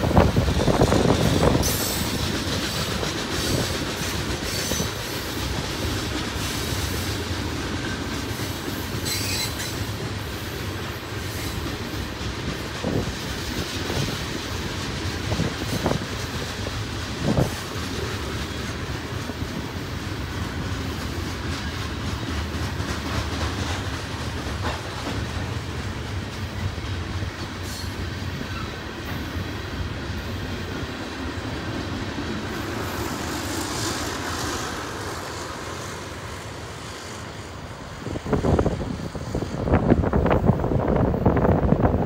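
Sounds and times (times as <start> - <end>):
wind buffeting microphone: 0.0 - 6.2, 11.7 - 20.7, 37.8 - 42.0
freight train wheels rumbling: 0.0 - 42.0.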